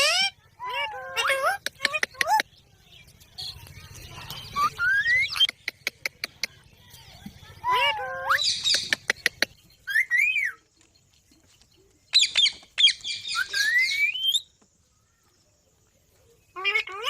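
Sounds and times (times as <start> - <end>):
parrot squawking and whistling: 4.6 - 5.5, 7.6 - 8.9, 12.2 - 14.4.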